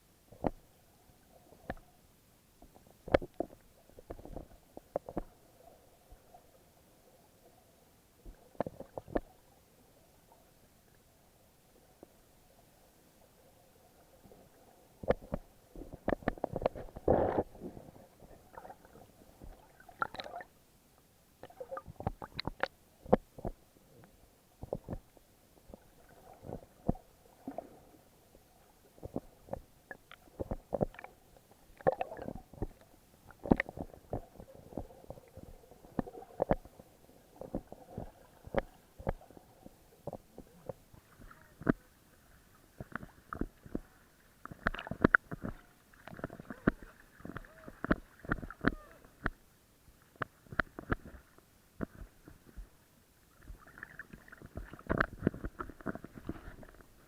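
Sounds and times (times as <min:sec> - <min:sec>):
muffled underwater gurgling: 0:42.8 - 0:49.2.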